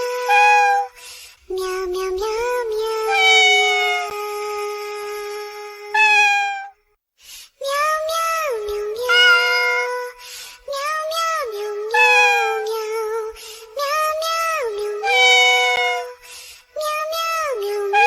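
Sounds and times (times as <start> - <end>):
melody sung in cat meows: 0.0 - 6.8, 7.6 - 18.0.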